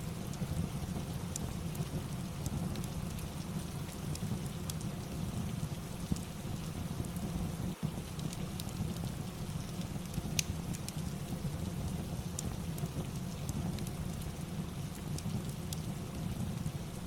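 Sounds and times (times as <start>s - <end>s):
fireplace crackling and popping: 0.0s - 17.0s
rain with low rumble: 0.0s - 17.0s.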